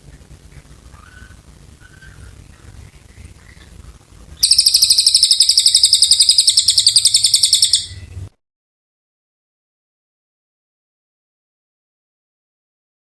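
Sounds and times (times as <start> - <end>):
faint bird chirps: 0.0 - 8.3
bird singing fast high trill: 4.4 - 8.3.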